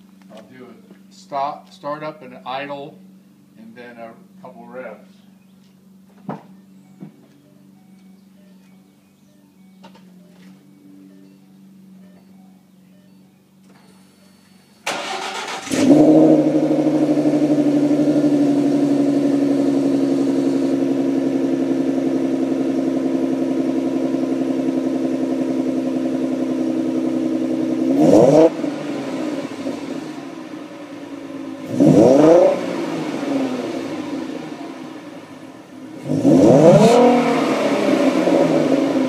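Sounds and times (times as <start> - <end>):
car engine idling: 0.0 - 39.0
starter motor cranking: 14.8 - 16.0
engine revving: 14.9 - 39.0.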